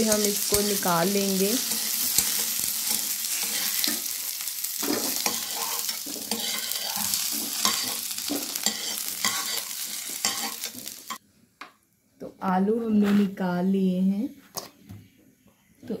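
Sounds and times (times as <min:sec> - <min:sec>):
potatoes sizzling in oil: 0:00.0 - 0:11.2
metal spatula scraping pan: 0:01.6 - 0:11.2.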